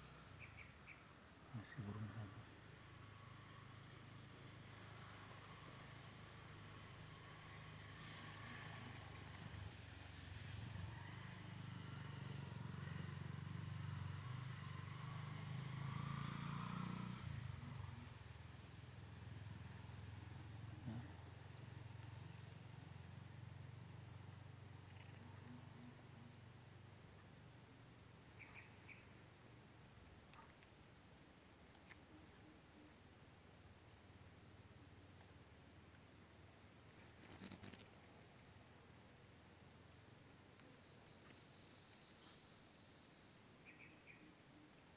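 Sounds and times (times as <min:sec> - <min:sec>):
insects pulsing calls: 0:00.0 - 0:44.9
insects trilling: 0:00.0 - 0:44.9.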